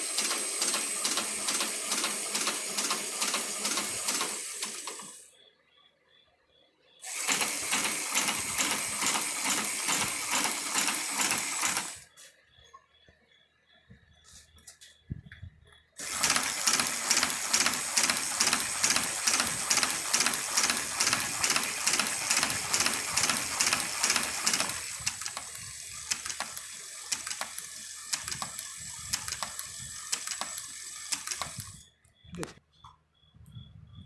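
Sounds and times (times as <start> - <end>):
hand-cranked sewing machine clatter: 0.0 - 5.2, 7.1 - 12.0, 16.0 - 30.5.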